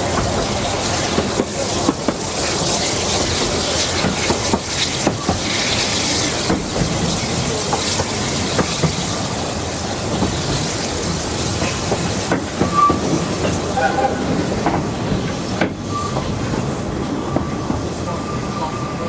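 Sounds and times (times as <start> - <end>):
train rumbling: 0.0 - 19.0
wheel squeals: 12.6 - 14.4, 15.8 - 16.5, 17.2 - 19.0.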